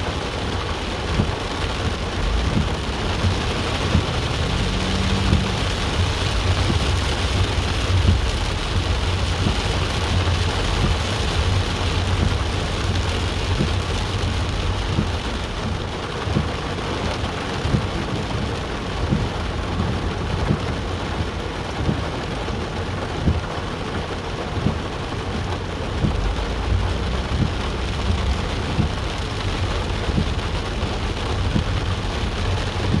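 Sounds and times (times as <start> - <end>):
heavy rain falling: 0.0 - 33.0
low rumble: 1.0 - 15.8, 25.7 - 33.0.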